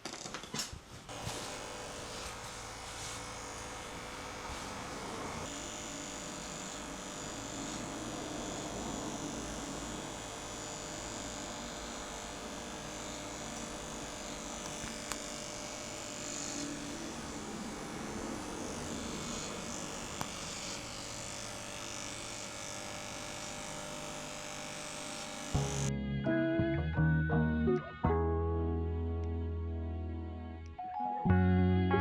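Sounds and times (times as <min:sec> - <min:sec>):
steady hum: 0:01.1 - 0:25.9.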